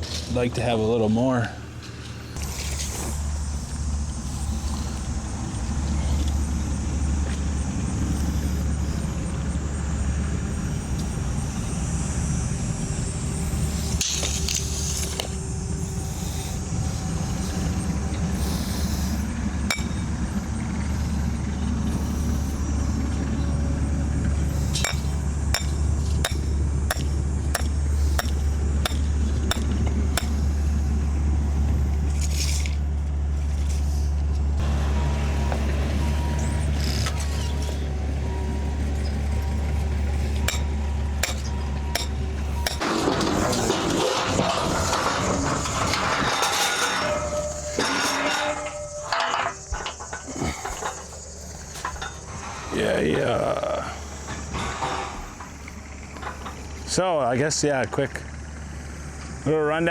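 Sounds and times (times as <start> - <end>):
engine droning: 0.0 - 59.9.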